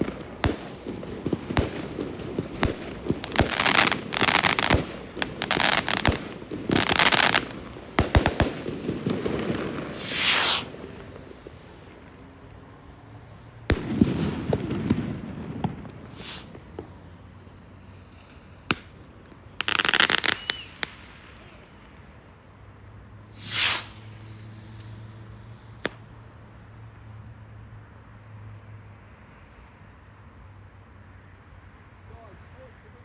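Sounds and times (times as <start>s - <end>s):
fireworks banging and crackling: 0.0s - 22.0s, 23.2s - 26.0s.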